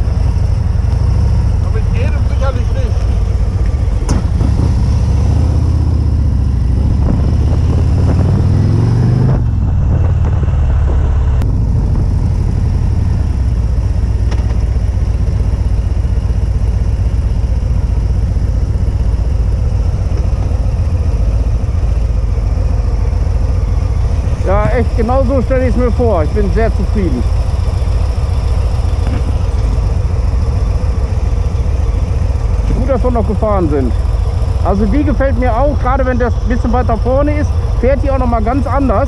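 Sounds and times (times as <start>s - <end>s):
motorcycle engine accelerating: 0.0s - 39.0s
wind noise on microphone: 4.0s - 5.6s, 6.3s - 14.4s.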